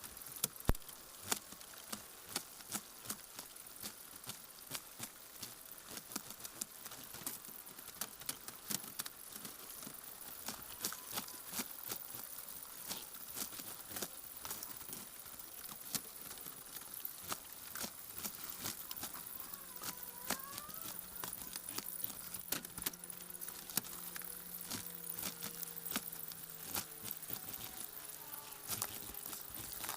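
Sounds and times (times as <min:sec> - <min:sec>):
chickens tapping and scratching: 0:00.4 - 0:29.9
low steady hum: 0:09.2 - 0:29.9.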